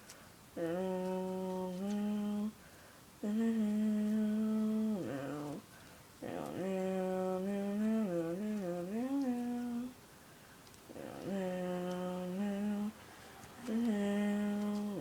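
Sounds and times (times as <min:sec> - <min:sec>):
person humming long notes: 0:00.6 - 0:02.5, 0:03.2 - 0:05.6.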